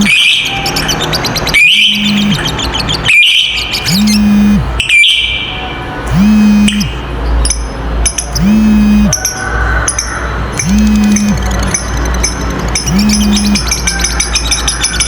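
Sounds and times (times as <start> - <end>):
lovebird chirps: 0.0 - 5.3, 12.8 - 14.7
lovebird chattering calls: 0.0 - 5.4, 9.9 - 15.0.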